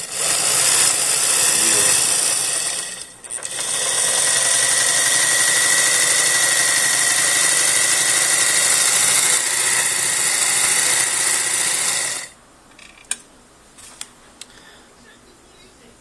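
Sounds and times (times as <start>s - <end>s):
sewing machine running: 0.0s - 12.4s.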